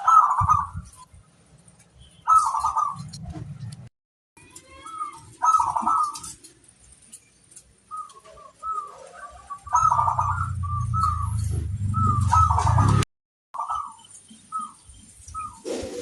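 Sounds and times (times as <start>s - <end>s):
dove cooing: 0.0s - 1.0s, 2.3s - 3.2s, 4.8s - 6.6s, 7.9s - 13.0s, 15.4s - 16.0s.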